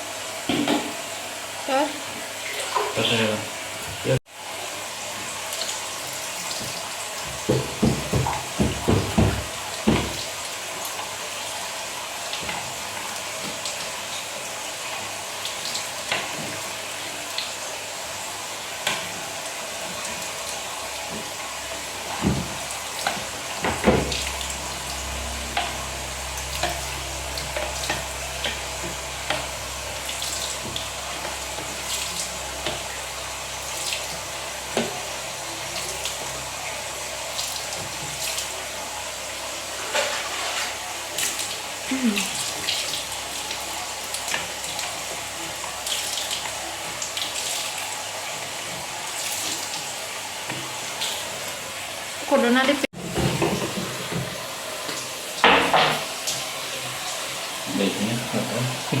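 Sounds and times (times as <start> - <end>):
tap water running: 0.0 - 59.0
low steady hum: 22.6 - 36.8.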